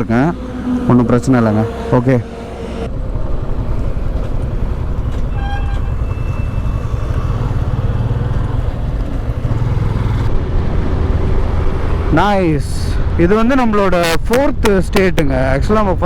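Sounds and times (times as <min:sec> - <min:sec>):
vehicle horn: 0:00.0 - 0:02.9, 0:05.2 - 0:07.6
motorcycle engine and wind rumble: 0:02.9 - 0:16.0.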